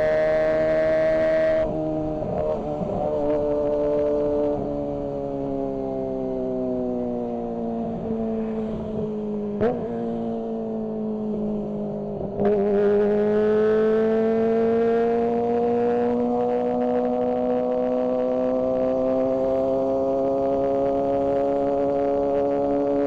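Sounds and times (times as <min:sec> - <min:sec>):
motorcycle engine revving: 0:07.5 - 0:23.0.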